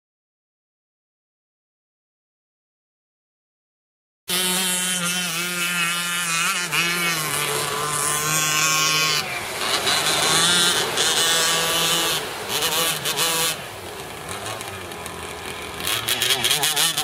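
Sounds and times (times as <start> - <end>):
two-stroke engine at high revs: 4.3 - 17.0.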